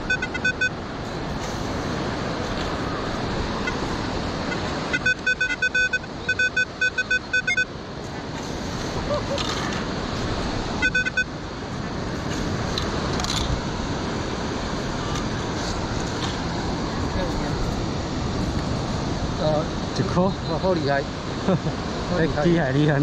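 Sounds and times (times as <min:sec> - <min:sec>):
metal detector beeps: 0:00.0 - 0:00.8, 0:04.5 - 0:07.7, 0:10.8 - 0:11.3
surf and wind hiss: 0:00.0 - 0:23.0.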